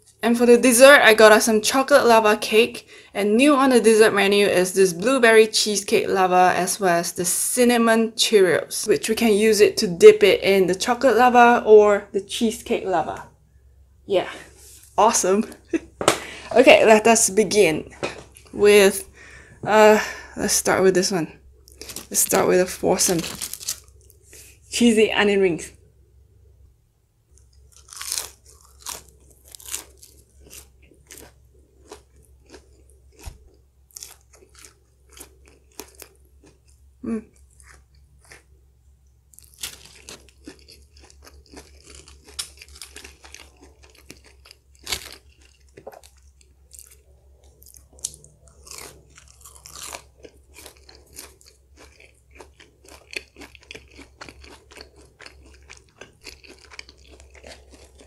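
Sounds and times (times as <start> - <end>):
crunching and chewing: 21.5 - 22.4, 23.0 - 24.6, 27.3 - 58.0.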